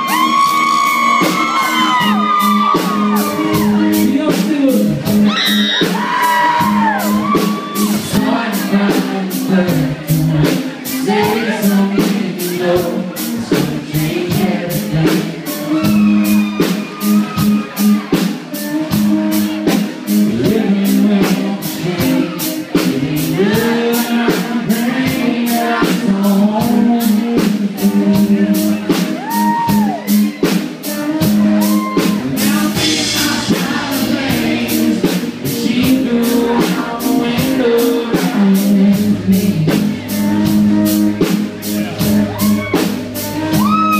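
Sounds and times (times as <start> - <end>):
drum beat: 0.0 - 12.4, 28.2 - 43.9
guitar: 0.0 - 43.9
person singing: 0.0 - 43.9.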